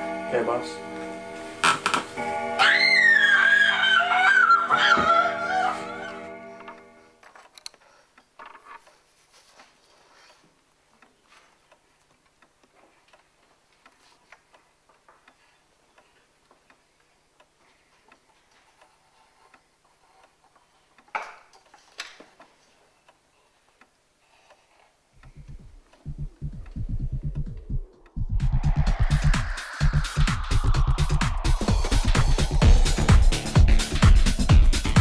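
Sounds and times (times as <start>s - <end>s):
clock ticking: 25.2s - 35.0s.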